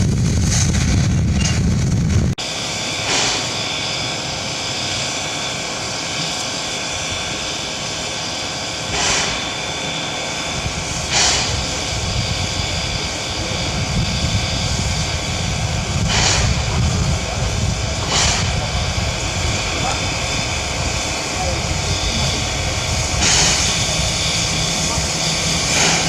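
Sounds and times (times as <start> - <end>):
low rumble: 0.0 - 2.4
bursts of steam: 0.0 - 26.0
steam locomotive hum and hiss: 0.0 - 26.0.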